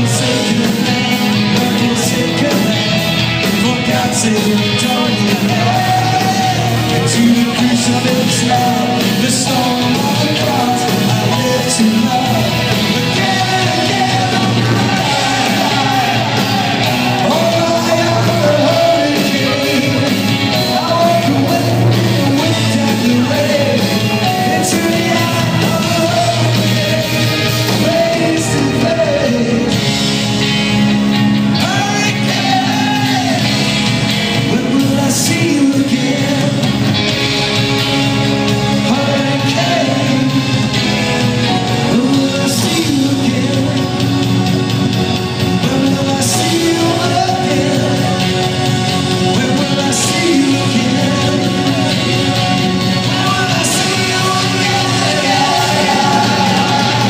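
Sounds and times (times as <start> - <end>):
person singing: 0.0 - 30.5, 31.4 - 37.3, 38.2 - 57.0
rock band playing: 0.0 - 57.0.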